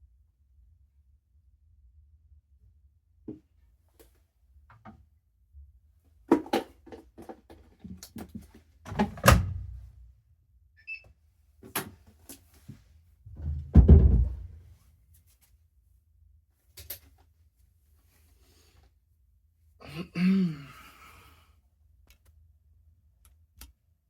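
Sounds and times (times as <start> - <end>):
heavy thuds: 13.3 - 14.6.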